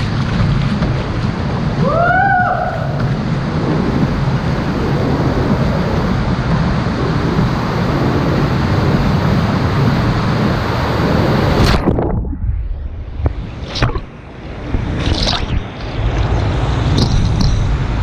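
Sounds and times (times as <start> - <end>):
rushing river water: 0.0 - 12.2
wind rumble on microphone: 0.0 - 18.0.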